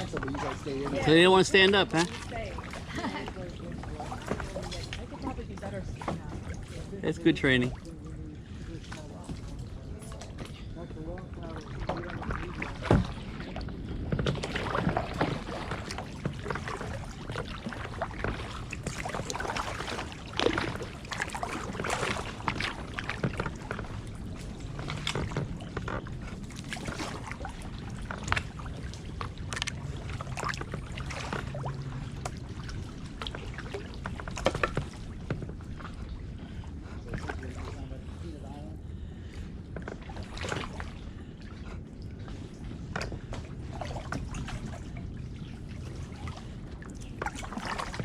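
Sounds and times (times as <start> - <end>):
paddle splashing in water: 0.0 - 48.0.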